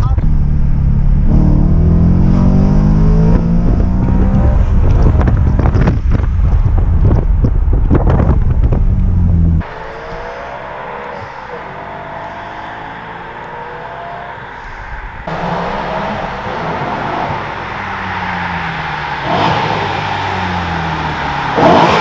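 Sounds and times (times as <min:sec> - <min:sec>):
car engine accelerating hard: 0:00.2 - 0:06.0, 0:09.0 - 0:22.0
distant car approaching: 0:08.9 - 0:22.0.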